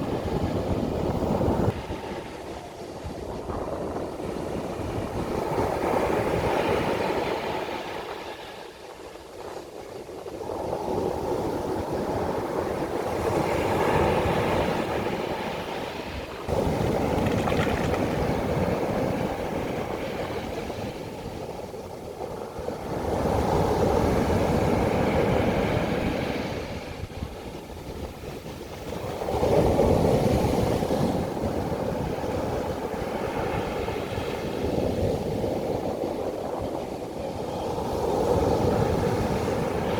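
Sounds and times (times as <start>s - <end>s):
sea waves breaking on beach: 13.5s - 21.9s.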